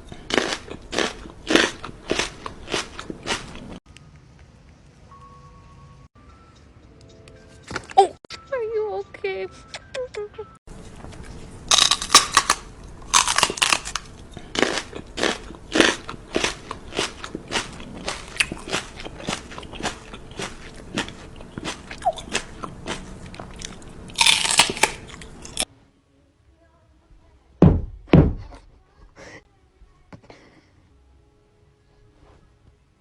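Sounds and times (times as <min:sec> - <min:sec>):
crunchy food being chewed: 0:00.0 - 0:03.8, 0:10.7 - 0:25.7
low thumps: 0:27.6 - 0:28.7.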